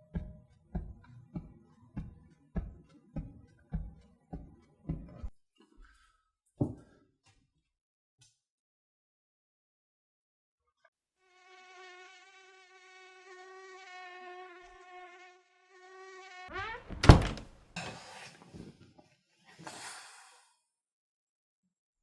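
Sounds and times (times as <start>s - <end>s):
mosquito whine: 11.2s - 17.3s
loud thump: 16.9s - 17.5s.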